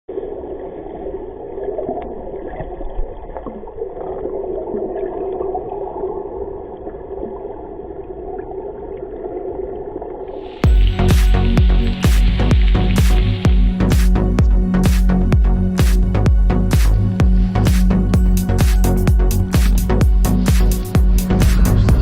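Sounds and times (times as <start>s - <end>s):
music: 10.4s - 22.0s.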